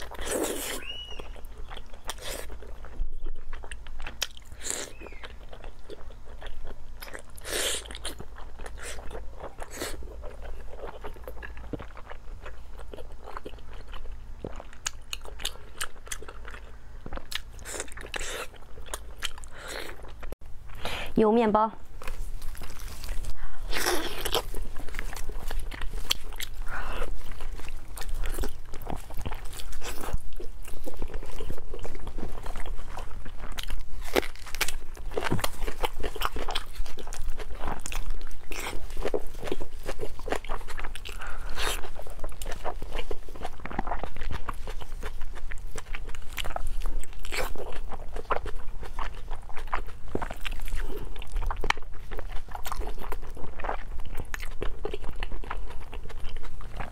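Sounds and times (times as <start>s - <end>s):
person eating and chewing: 0.0s - 21.2s, 22.0s - 56.9s
faint low hum: 0.0s - 56.9s.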